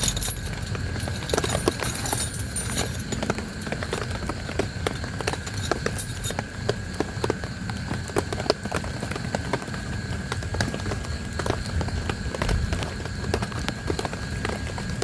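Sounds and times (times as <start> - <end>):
raindrops tapping on a tent: 6.4 - 15.0.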